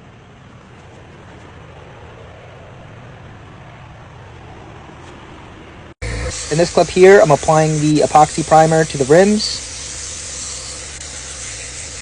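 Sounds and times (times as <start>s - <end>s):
background hiss: 6.0s - 12.0s
engine idling: 6.0s - 12.0s.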